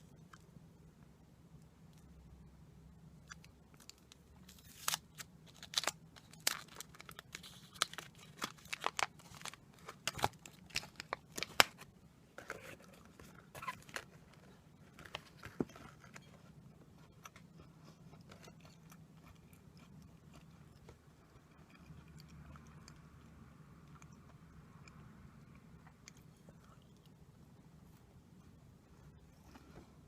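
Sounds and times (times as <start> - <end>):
plastic wrapper crinkling: 3.7 - 16.3.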